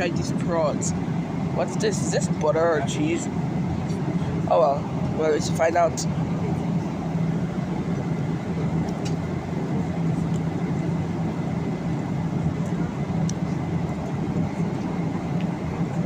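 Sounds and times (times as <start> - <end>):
airliner cabin noise: 0.0 - 16.0.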